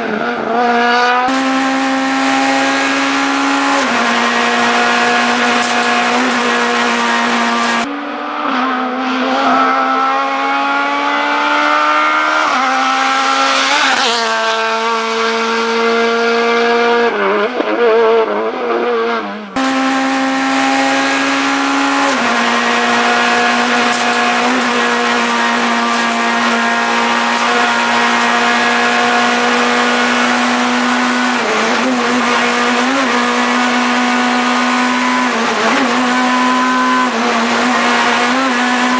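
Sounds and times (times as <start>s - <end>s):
rally car engine revving: 0.0s - 38.9s.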